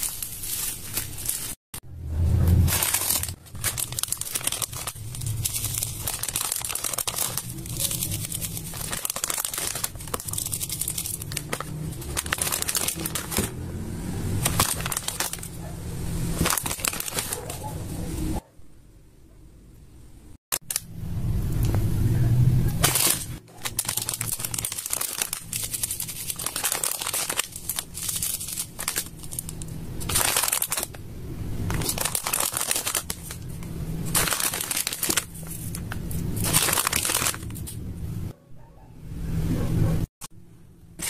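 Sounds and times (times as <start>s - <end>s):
slime crinkling and crackling: 0.0s - 1.6s, 2.6s - 13.5s, 14.4s - 15.6s, 16.3s - 17.7s, 22.8s - 31.0s, 31.6s - 37.8s.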